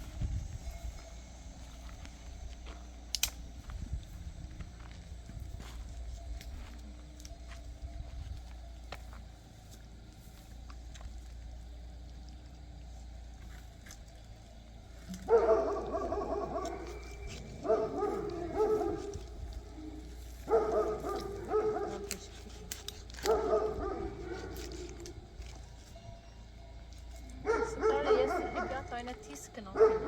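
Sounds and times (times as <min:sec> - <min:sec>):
dog barking: 0:15.2 - 0:19.3, 0:20.4 - 0:25.1, 0:27.4 - 0:30.0.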